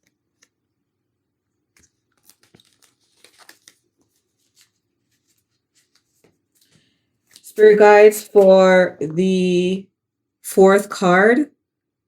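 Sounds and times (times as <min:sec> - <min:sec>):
cards rustling and clicking: 0:00.0 - 0:00.6, 0:01.6 - 0:07.6.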